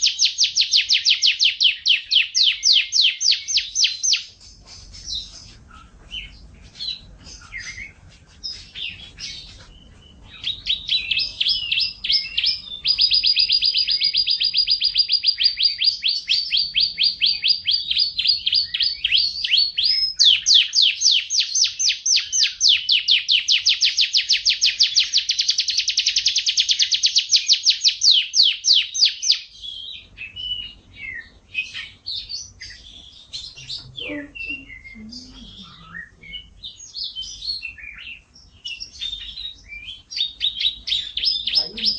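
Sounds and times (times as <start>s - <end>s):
canary singing: 0.0s - 41.9s.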